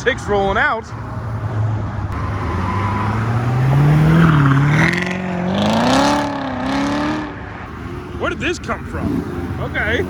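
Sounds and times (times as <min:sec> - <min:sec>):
car engine accelerating: 0:01.0 - 0:10.0.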